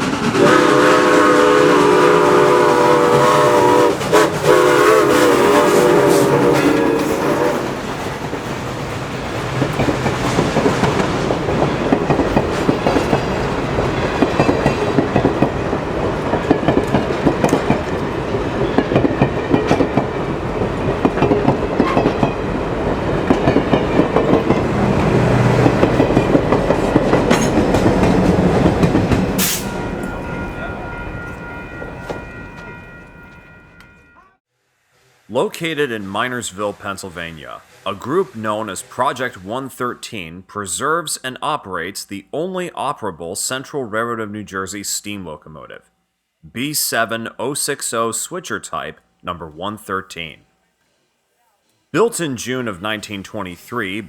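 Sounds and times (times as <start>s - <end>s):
steam locomotive exhaust beating: 0.0s - 34.3s
wheel and rail clatter: 6.1s - 34.1s.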